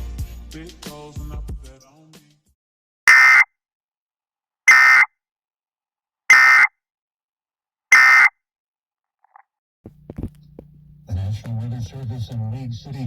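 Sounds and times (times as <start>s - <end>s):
high-pitched alert beeps: 3.1s - 3.4s.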